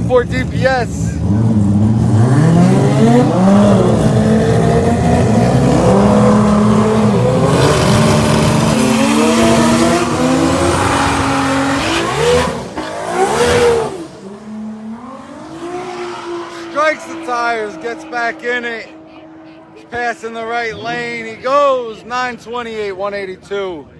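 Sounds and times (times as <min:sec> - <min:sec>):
drag car engine at full throttle: 0:00.0 - 0:21.3.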